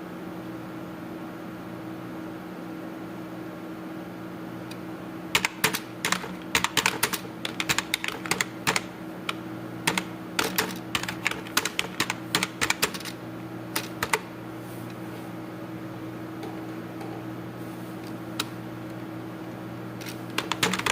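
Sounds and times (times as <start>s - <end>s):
steady low hum: 3.2s - 20.9s
typing on computer keyboard: 5.3s - 13.2s, 13.8s - 14.3s, 20.0s - 20.9s.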